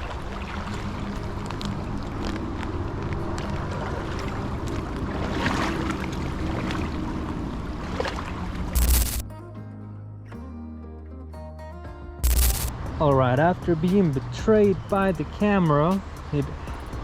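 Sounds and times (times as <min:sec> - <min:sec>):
steady low rumble: 0:00.0 - 0:09.2, 0:12.3 - 0:17.0
water splashing around wading person: 0:00.0 - 0:09.2.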